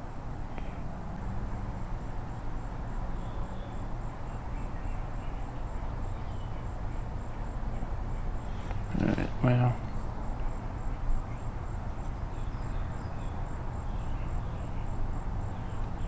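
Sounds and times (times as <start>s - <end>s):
insects trilling: 8.4s - 10.4s.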